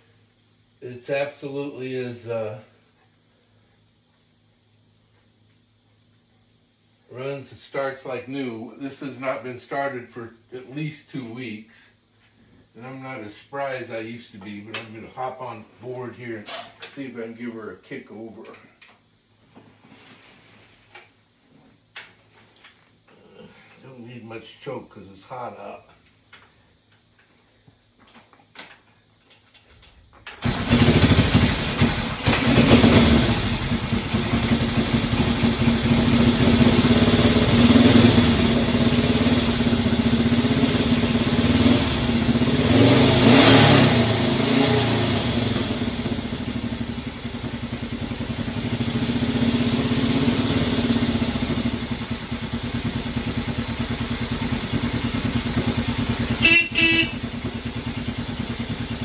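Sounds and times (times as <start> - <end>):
motorcycle engine starting and idling: 30.2 - 59.0.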